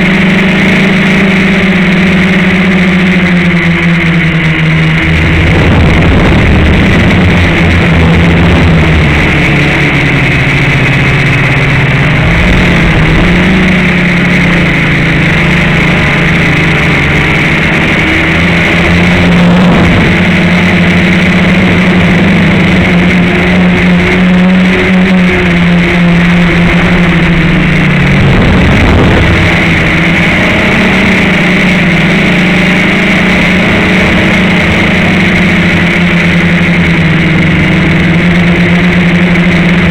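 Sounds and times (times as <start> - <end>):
quadcopter motors buzzing: 4.9 - 31.2.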